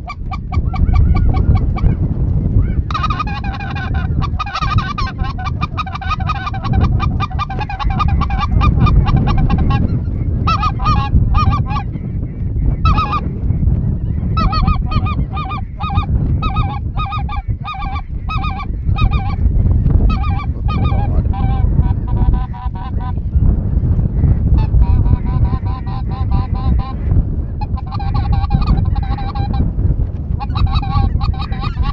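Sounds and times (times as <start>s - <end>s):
geese honking: 0.0s - 2.0s, 2.9s - 12.1s, 12.7s - 13.3s, 14.0s - 23.2s, 24.6s - 27.0s, 27.6s - 29.6s, 30.4s - 31.9s
steady low rumble: 0.0s - 31.9s.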